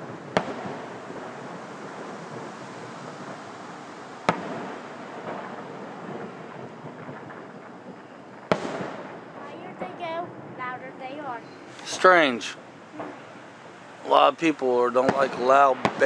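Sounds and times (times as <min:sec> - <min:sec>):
distant firework bang: 0:00.0 - 0:10.6, 0:15.0 - 0:16.0
rolling rumble: 0:00.0 - 0:16.0
steady background hiss: 0:00.0 - 0:16.0.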